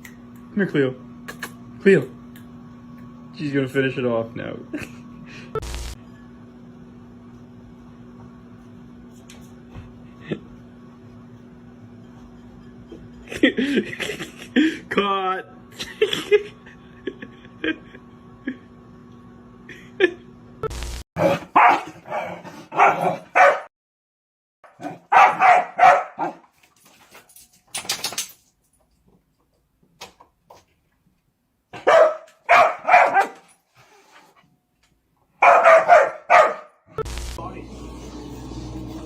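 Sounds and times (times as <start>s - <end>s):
steady low hum: 4.0s - 14.9s, 37.0s - 39.0s
dog barking: 21.2s - 23.7s, 24.7s - 26.4s, 31.7s - 33.4s, 35.4s - 36.8s.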